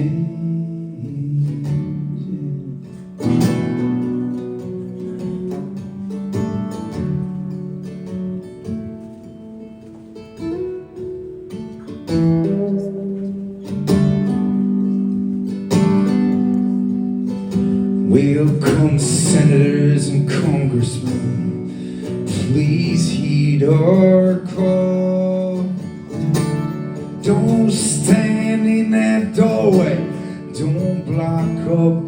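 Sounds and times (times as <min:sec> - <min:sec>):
person singing: 0:00.0 - 0:03.3, 0:11.1 - 0:26.2, 0:27.0 - 0:32.0
acoustic guitar strumming: 0:00.0 - 0:32.0.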